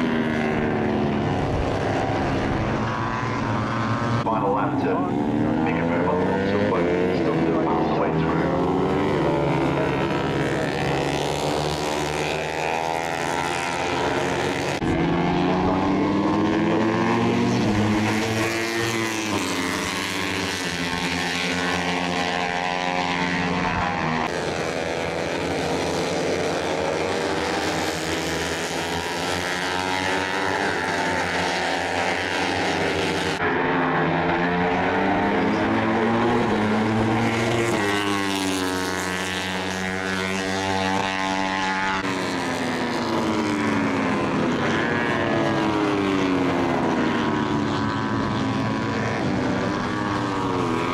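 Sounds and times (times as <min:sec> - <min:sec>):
racing motorcycles revving: 0:00.0 - 0:50.9.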